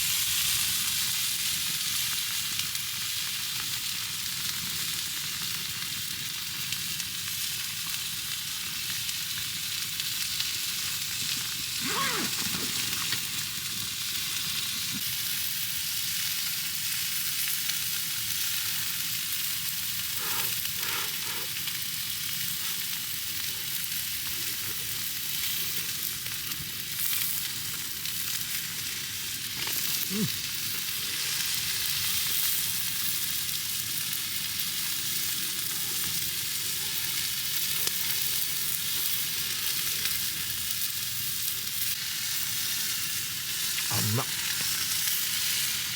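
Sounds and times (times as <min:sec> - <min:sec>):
meat sizzling in a frying pan: 0:00.0 - 0:45.9
fat spitting: 0:11.8 - 0:13.4, 0:20.1 - 0:21.6, 0:29.6 - 0:30.4, 0:43.9 - 0:44.8.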